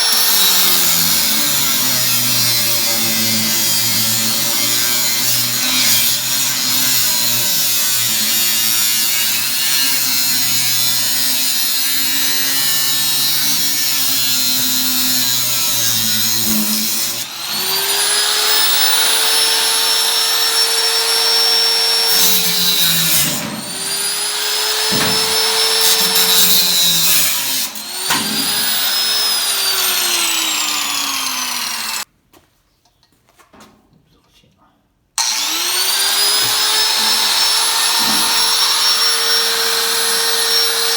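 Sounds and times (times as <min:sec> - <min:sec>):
power tool rasping on tin can: 0:00.0 - 0:32.0.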